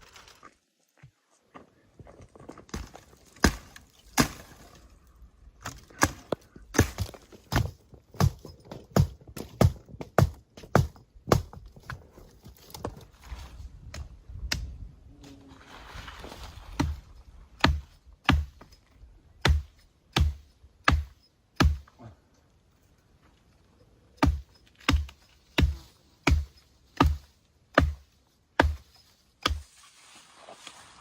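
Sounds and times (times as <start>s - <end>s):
hand tool striking wood: 2.7s - 4.6s, 5.6s - 12.0s, 16.8s - 18.8s, 19.4s - 21.9s, 24.2s - 29.7s.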